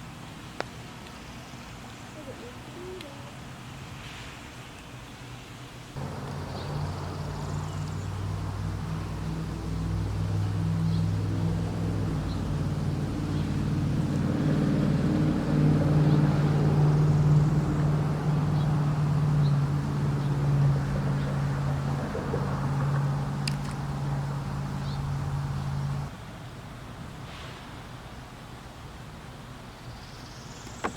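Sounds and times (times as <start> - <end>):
engine humming: 6.0 - 26.1.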